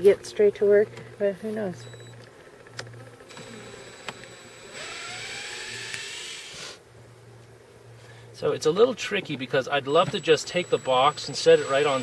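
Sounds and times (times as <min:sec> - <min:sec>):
low steady hum: 0:00.0 - 0:12.0
motor whirring rising in pitch: 0:01.8 - 0:06.8, 0:09.9 - 0:12.0.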